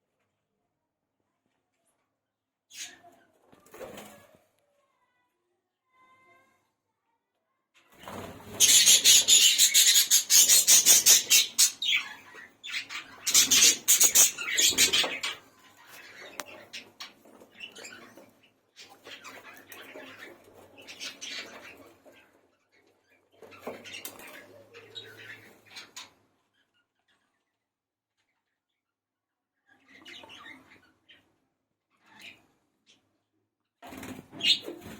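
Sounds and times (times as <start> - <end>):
budgerigars chirping: 8.6 - 15.4.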